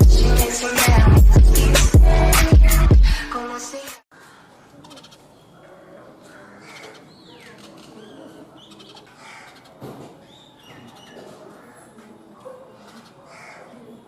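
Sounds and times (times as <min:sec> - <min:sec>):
sparrows chirping: 0:04.8 - 0:14.0.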